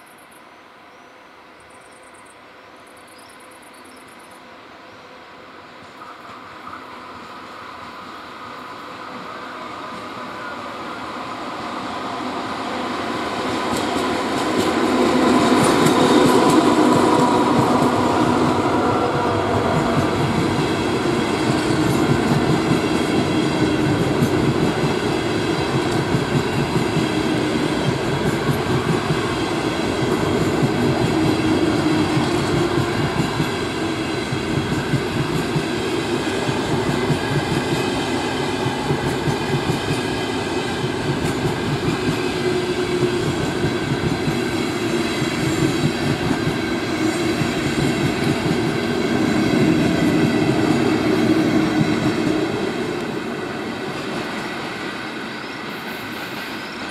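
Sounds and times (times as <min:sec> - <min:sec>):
train wheels rumbling on rails: 0:05.7 - 0:56.9
clickety-clack over rail joints: 0:13.4 - 0:18.6, 0:19.3 - 0:53.2.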